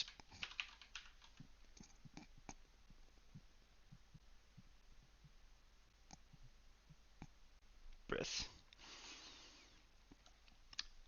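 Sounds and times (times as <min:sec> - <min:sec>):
keyboard keystrokes: 0:00.0 - 0:01.4
low steady hum: 0:00.0 - 0:11.0.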